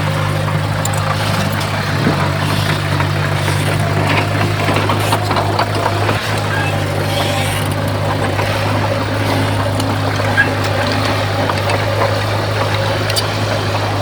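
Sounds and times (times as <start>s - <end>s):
clanks and rattles: 0.0s - 14.0s
heavy diesel engine running: 0.0s - 14.0s.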